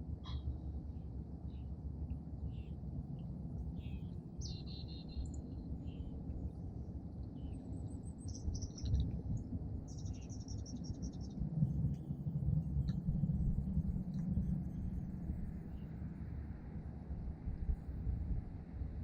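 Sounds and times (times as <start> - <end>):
steady low rumble: 0.0 - 19.0
small songbirds chirping: 2.4 - 12.1.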